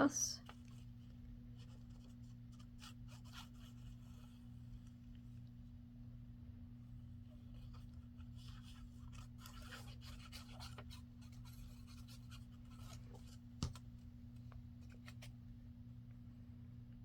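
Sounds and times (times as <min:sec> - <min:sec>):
paper rustling and scratching: 0:00.4 - 0:05.3, 0:07.1 - 0:13.9, 0:14.7 - 0:15.4.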